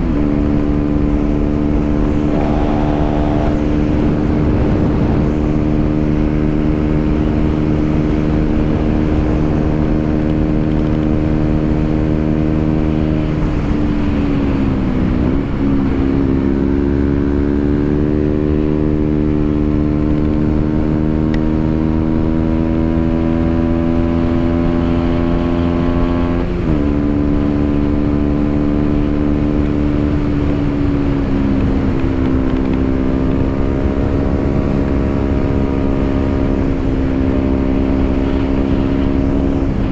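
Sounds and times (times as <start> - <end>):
motorcycle engine running: 0.3 - 12.4, 27.6 - 39.9.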